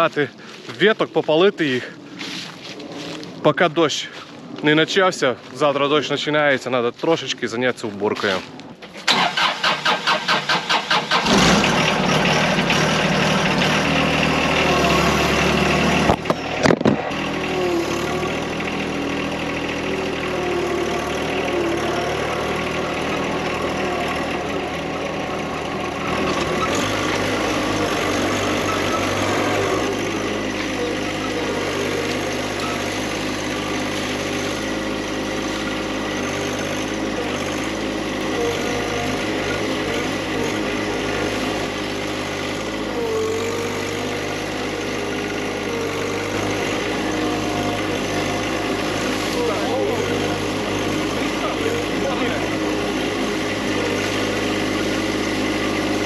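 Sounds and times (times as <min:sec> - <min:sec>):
tractor engine running: 0:00.0 - 0:56.0
tractor starter cranking: 0:08.2 - 0:56.0.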